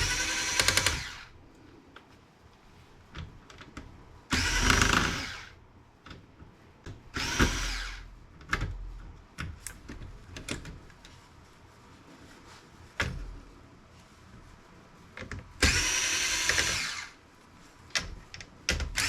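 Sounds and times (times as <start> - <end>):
cordless power drill running: 0.0 - 1.3, 4.3 - 5.6, 7.2 - 8.0, 15.6 - 17.2.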